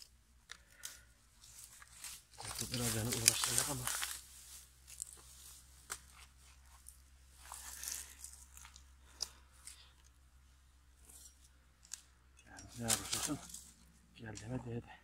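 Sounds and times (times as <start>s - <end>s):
short rustle: 0.7s - 10.0s, 12.6s - 14.6s.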